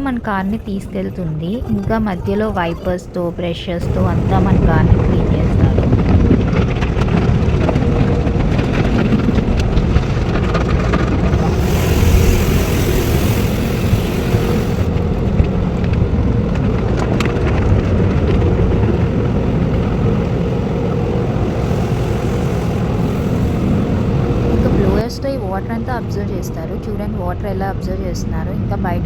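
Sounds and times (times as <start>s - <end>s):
car wash machinery rumbling: 1.2s - 29.0s
water spray hissing: 11.2s - 15.1s, 20.8s - 25.1s.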